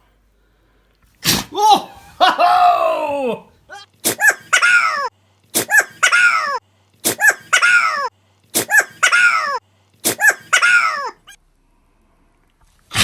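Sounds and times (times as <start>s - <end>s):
puppy sneezing: 1.2s - 1.6s, 4.0s - 11.2s.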